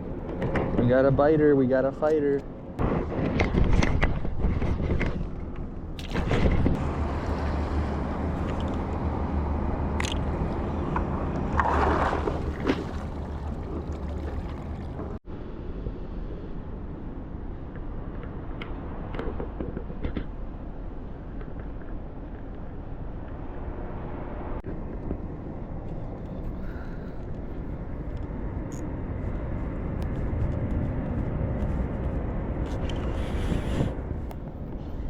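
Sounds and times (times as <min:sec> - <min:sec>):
wind rumbling on microphone: 0:00.0 - 0:35.0
water sloshing against kayak hull: 0:10.0 - 0:15.2.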